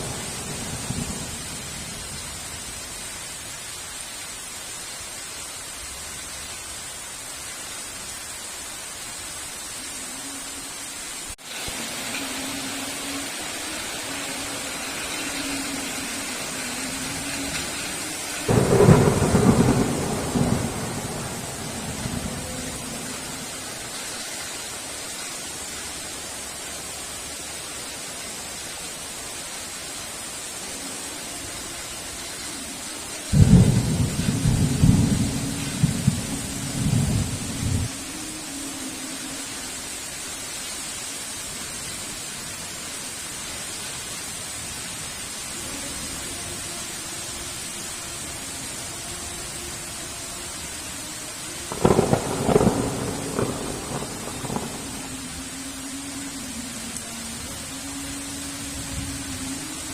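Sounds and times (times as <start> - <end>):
heavy rain: 0.0 - 59.9
thunder rumble: 13.2 - 24.1, 33.3 - 38.0, 51.7 - 55.6.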